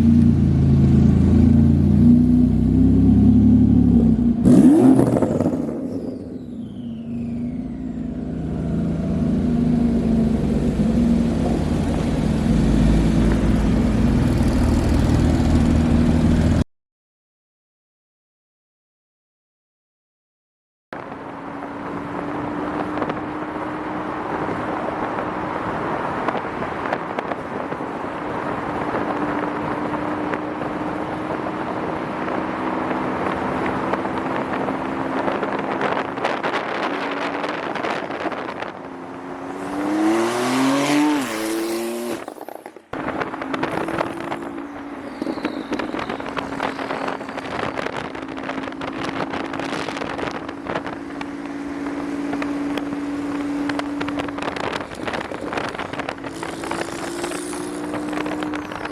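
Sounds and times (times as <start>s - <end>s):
car engine revving: 0.0s - 5.9s, 7.5s - 16.6s, 35.8s - 58.9s.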